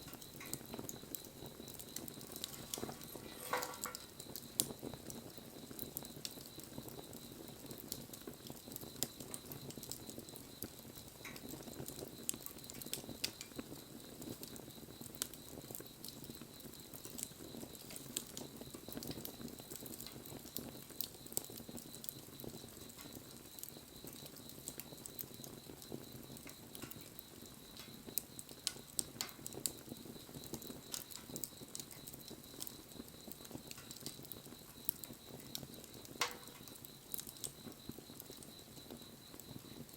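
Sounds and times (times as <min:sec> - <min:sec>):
campfire burning: 0:00.0 - 0:39.9
fire pops and snaps: 0:00.0 - 0:39.9.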